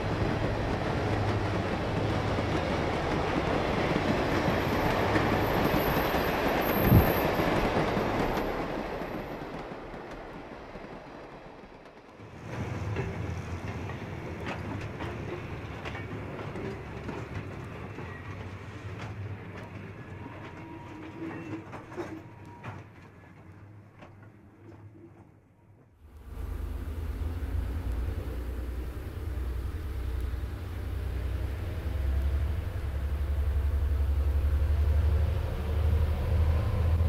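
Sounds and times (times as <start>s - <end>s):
train wheels clicking over rail joints: 0.0s - 25.3s
train rumble: 0.0s - 37.0s.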